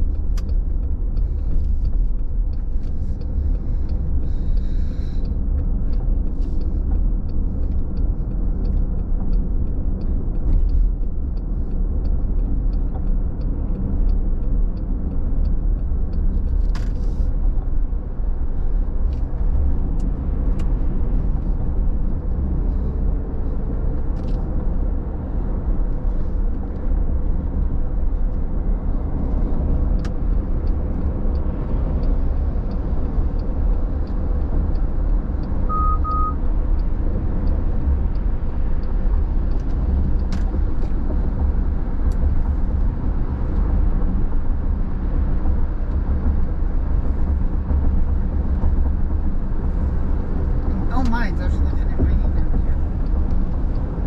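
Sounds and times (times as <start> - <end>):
car driving on wet road: 0.0 - 54.0
faint ticks: 0.1 - 17.3
short beeps: 35.7 - 36.4.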